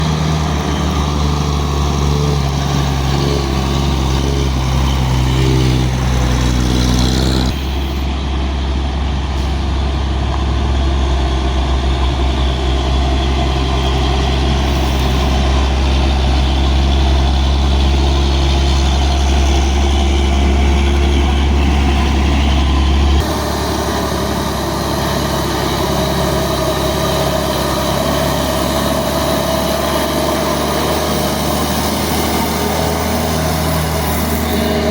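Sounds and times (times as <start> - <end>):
diesel truck engines running: 0.0 - 34.9.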